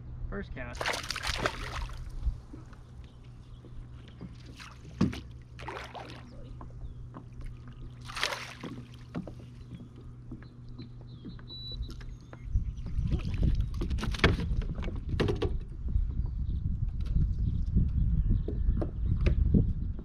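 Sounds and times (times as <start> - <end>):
low hum: 0.0 - 20.0
water splashing: 0.8 - 2.7, 4.2 - 6.6, 7.3 - 9.6.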